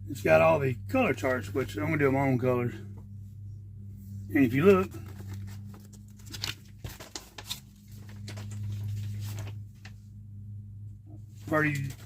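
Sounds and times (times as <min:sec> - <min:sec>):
low electrical hum: 0:00.0 - 0:12.0
paper sheet rustling: 0:04.9 - 0:10.0, 0:11.4 - 0:12.0.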